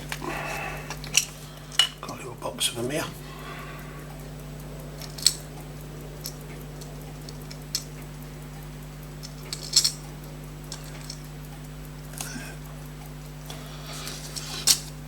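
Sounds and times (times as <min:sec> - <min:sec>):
low electrical hum: 0:00.0 - 0:15.0
tweezers clicking on watch parts: 0:04.0 - 0:15.0.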